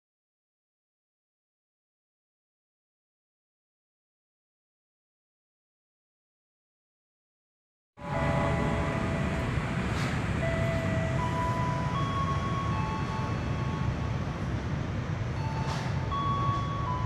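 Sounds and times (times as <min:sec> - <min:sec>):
high-pitched train whines: 0:08.0 - 0:17.0
train rumbling: 0:08.0 - 0:17.0.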